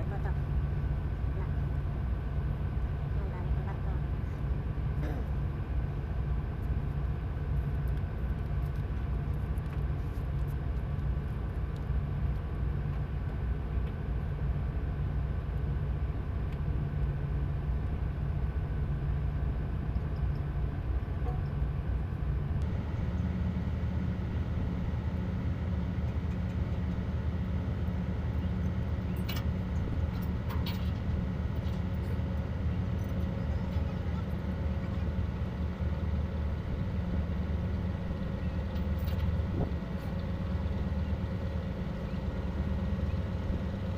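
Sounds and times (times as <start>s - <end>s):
diesel engine droning: 11.1s - 43.9s.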